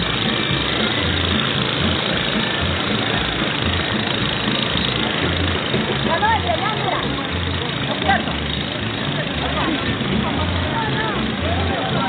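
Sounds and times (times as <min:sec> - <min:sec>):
motorboat engines running: 0:00.0 - 0:12.0.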